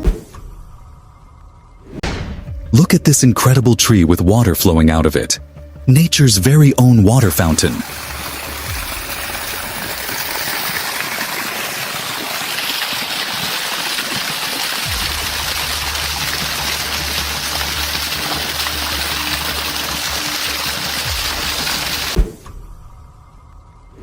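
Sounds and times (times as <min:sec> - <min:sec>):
water pouring: 0:07.1 - 0:22.2.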